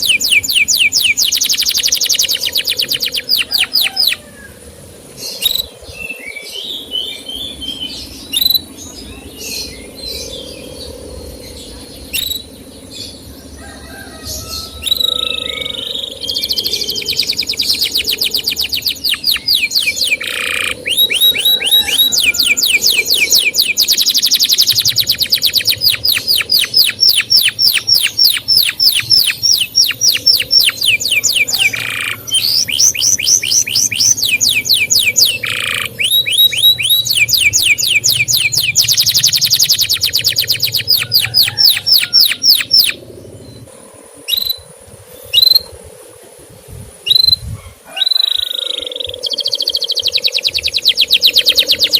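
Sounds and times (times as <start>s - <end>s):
canary chirping: 0.0s - 4.2s, 14.8s - 43.0s, 49.2s - 51.9s.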